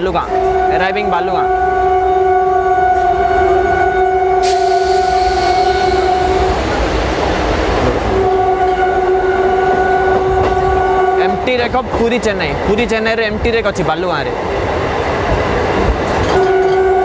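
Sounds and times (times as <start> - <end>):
electric train running slowly: 1.4 - 12.7, 14.4 - 17.0
loud steady pitched tone: 1.9 - 6.7
hiss: 4.4 - 6.2.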